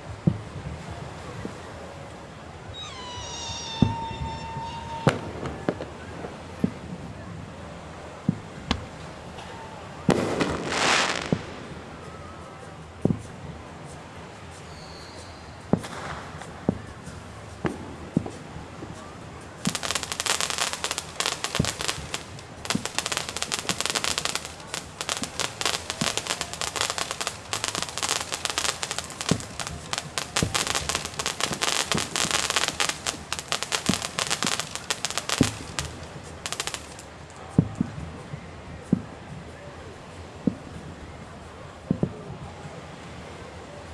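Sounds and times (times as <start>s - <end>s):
fireworks crackling barrage: 0.0s - 38.0s
firework booms: 2.8s - 13.3s, 19.6s - 37.3s.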